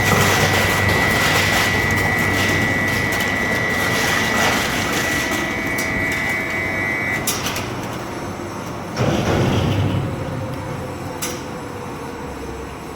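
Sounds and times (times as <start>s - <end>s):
shredder grinding: 0.0s - 8.3s
steady high whine: 0.0s - 8.7s.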